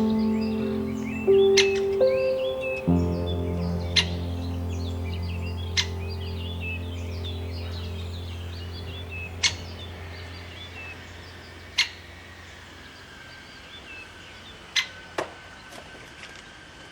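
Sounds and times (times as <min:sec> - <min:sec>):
soft background music: 0:00.0 - 0:12.5
small birds chirping faintly: 0:00.0 - 0:16.9.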